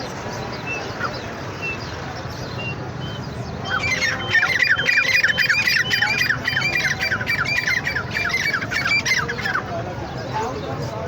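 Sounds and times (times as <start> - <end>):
francolin calling harsh notes: 3.7 - 9.6.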